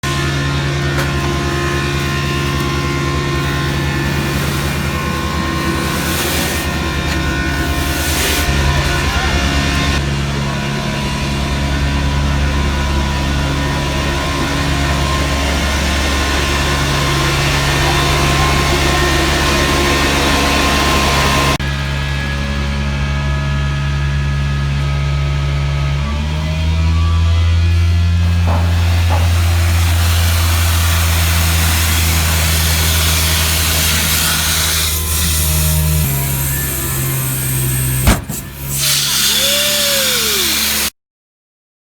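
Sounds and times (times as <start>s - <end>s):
truck engine drone: 0.0s - 40.9s
rushing hiss of air: 36.7s - 40.9s.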